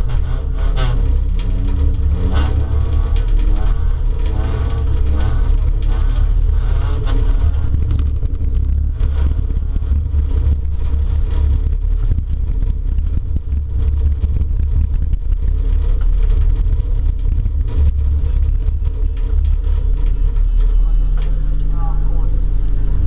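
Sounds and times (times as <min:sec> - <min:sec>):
car engine running hard: 0:00.0 - 0:23.0
rattles and knocks: 0:00.0 - 0:23.0.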